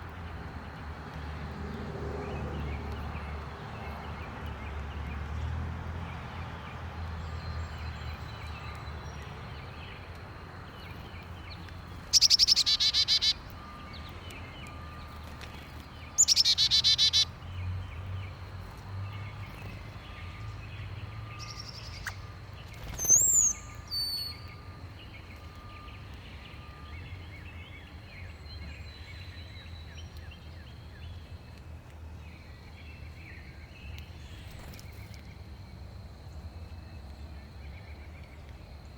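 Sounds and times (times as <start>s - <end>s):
faint bird chirping: 7.2s - 31.6s.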